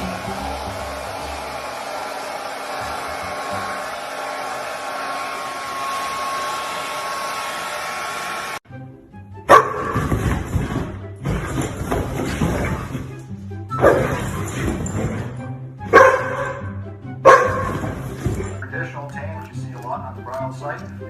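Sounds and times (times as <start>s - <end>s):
background music: 0.0s - 2.1s, 8.6s - 21.0s
dog barking: 9.5s - 10.1s, 13.8s - 14.3s, 15.9s - 18.0s.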